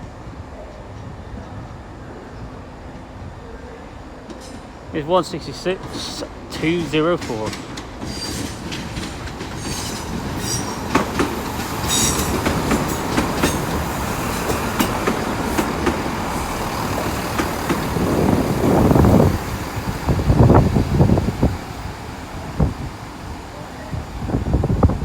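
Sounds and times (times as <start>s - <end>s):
train rumble: 0.0s - 25.0s
wheels clicking over rail joints: 5.8s - 21.2s
train wheels squealing: 8.0s - 14.9s.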